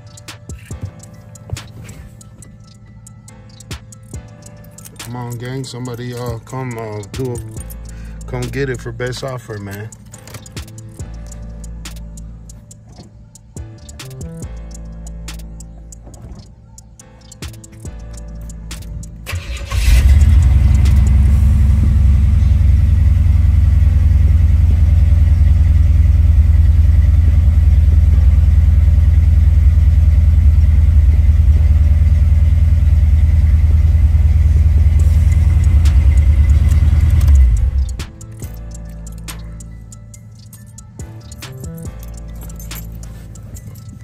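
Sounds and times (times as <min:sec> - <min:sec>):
car engine starting: 0:00.0 - 0:44.0
deep exhaust rumble idling: 0:17.9 - 0:44.0.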